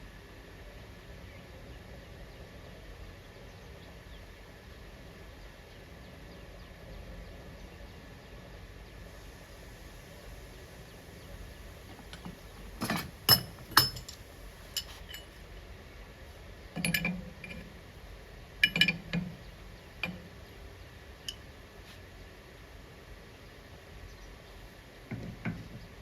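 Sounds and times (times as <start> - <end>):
metal tool parts clinking: 12.1 - 14.2, 14.8 - 15.3, 18.6 - 19.0.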